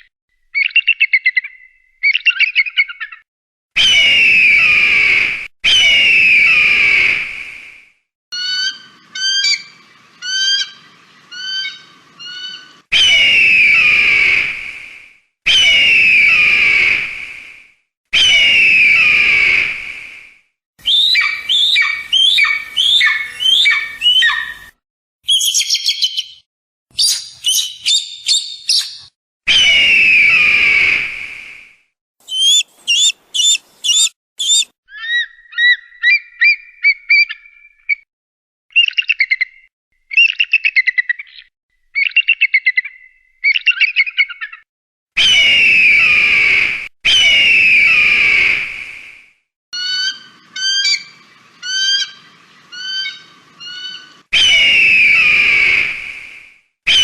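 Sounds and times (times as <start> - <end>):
eagle chattering whistled notes: 32.2 - 34.7
eagle hoarse screams: 32.2 - 34.7, 49.8 - 56.0.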